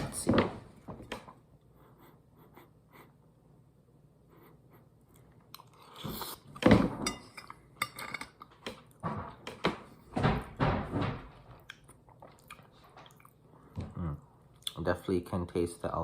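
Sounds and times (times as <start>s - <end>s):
fork clinking in a tray: 7.0s - 8.4s
chewing: 11.7s - 13.4s.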